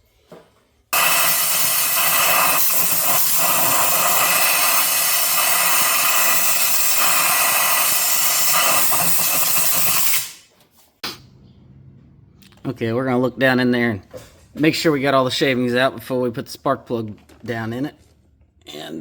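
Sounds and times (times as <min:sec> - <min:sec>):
compressed air blow gun hissing: 0:01.0 - 0:10.4.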